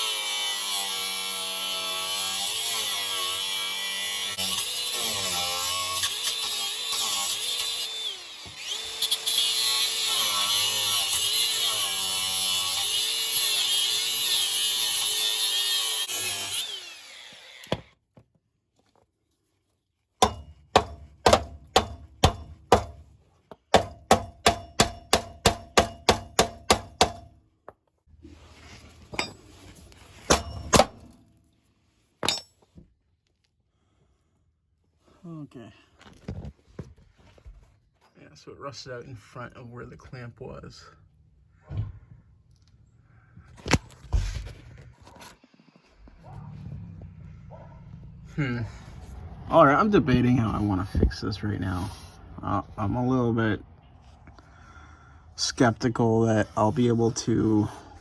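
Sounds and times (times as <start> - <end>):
power tool cutting metal: 0.0 - 17.9
hammer striking metal: 20.2 - 23.1, 23.7 - 27.3, 30.3 - 31.2.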